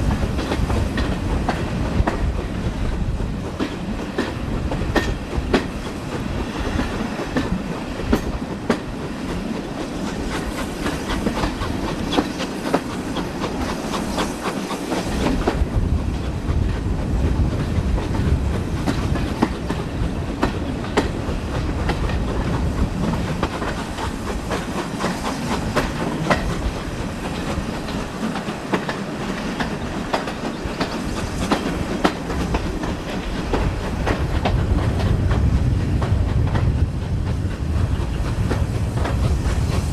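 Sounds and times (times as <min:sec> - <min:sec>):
train rumble: 0:00.0 - 0:39.9
wheels clicking over rail joints: 0:17.5 - 0:39.9.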